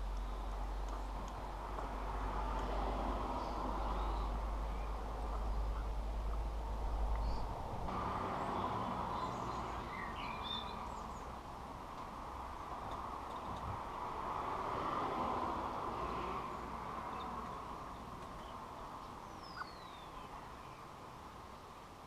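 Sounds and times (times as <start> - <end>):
small birds chirping: 0.0 - 1.9, 3.3 - 7.7, 8.4 - 12.1, 12.8 - 14.1, 16.1 - 21.9
steady outdoor rumble: 0.0 - 22.0.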